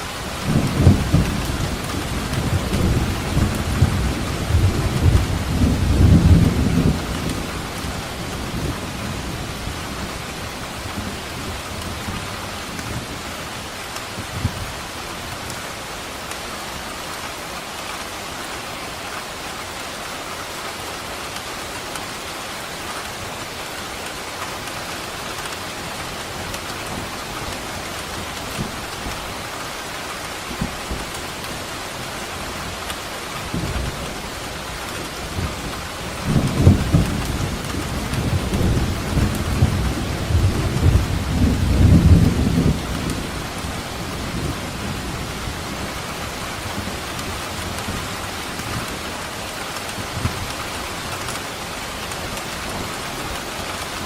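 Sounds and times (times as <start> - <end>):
heavy rain falling: 0.0 - 54.0
rolling thunder: 35.3 - 46.0.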